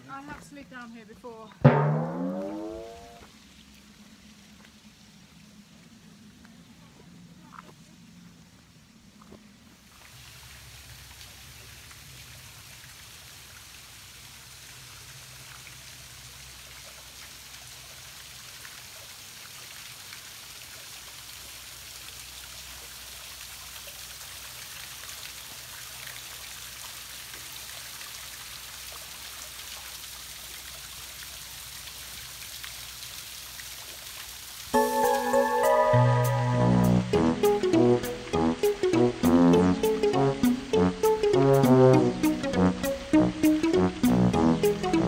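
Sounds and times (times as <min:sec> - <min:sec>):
waterfall splashing down rock: 0:09.7 - 0:35.3.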